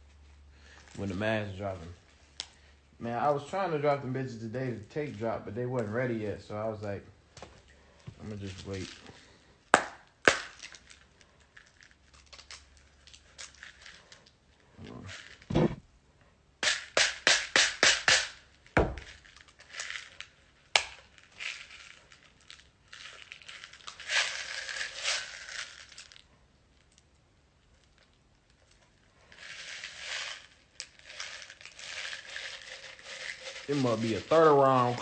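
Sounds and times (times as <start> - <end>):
thud: 15.5 - 15.8, 18.8 - 19.1.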